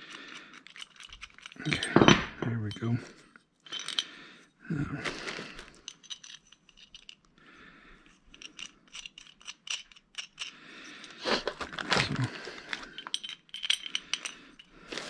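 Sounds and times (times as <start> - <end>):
metal hardware clinking: 0.4 - 4.1, 5.6 - 7.3, 8.1 - 10.6, 11.7 - 15.0.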